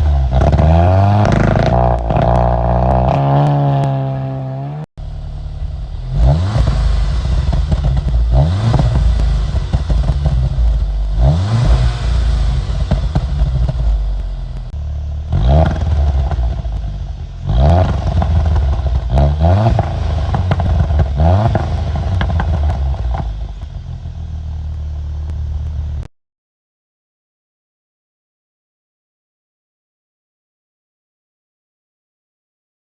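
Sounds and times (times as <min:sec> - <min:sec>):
car exhaust revving: 0:00.0 - 0:26.1.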